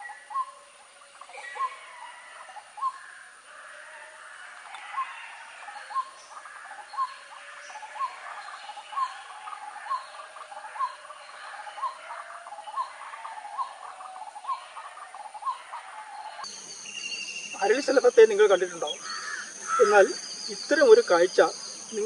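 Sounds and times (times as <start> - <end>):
steady hiss: 16.4 - 22.0.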